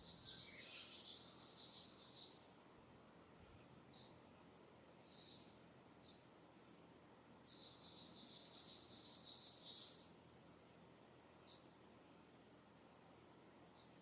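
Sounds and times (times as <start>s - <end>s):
distant songbird singing: 0.0s - 2.5s, 5.0s - 6.9s, 7.5s - 11.8s.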